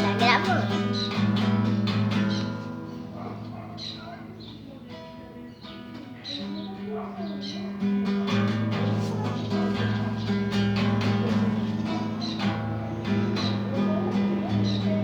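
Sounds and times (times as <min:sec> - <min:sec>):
acoustic guitar fingerpicked: 0:00.0 - 0:15.0.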